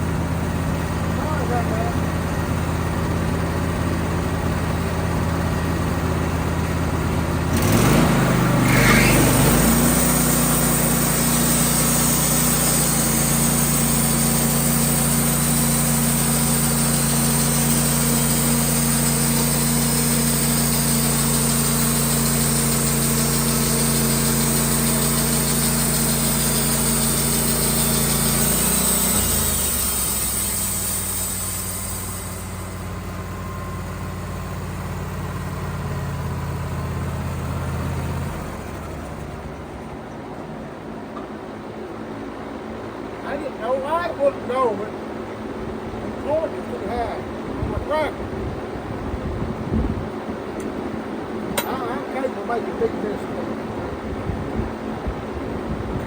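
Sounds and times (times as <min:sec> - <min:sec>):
engine running and revving: 0:00.0 - 0:39.7.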